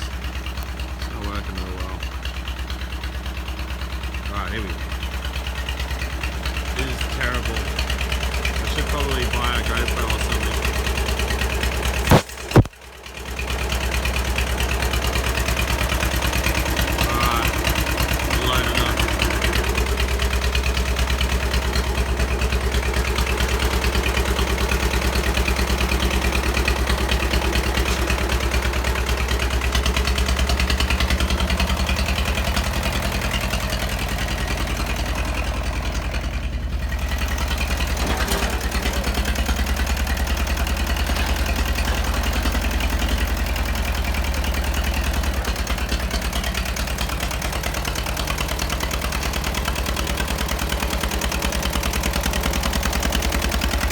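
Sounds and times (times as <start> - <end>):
tractor engine chugging: 0.0 - 53.9.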